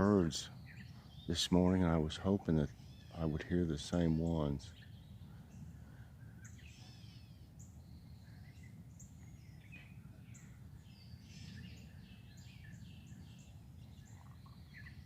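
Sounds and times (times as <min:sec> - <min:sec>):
songbirds chirping and singing: 0:00.0 - 0:15.0.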